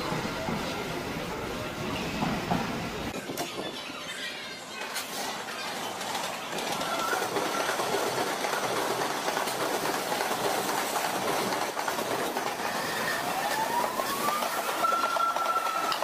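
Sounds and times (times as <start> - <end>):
electric train rumbling: 0.0 - 16.0
wheels clicking over rail joints: 13.8 - 16.0.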